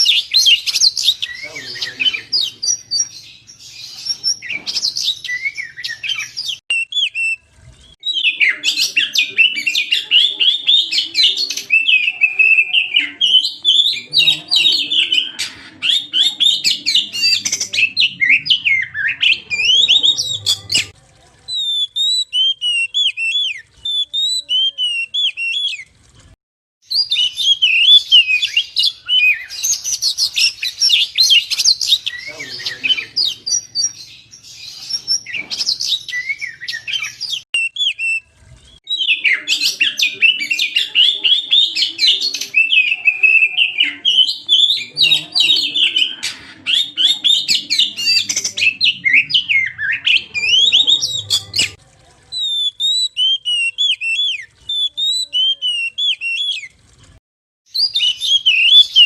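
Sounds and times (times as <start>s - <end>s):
songbird singing loudly: 0.0s - 7.4s, 8.0s - 20.9s, 26.8s - 51.8s, 57.7s - 59.0s.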